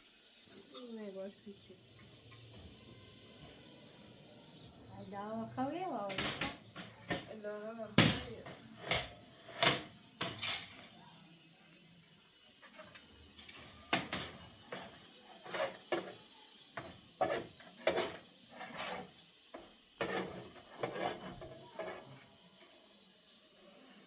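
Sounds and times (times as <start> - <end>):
hard objects knocking and clicking: 6.1 - 7.4, 8.0 - 11.0.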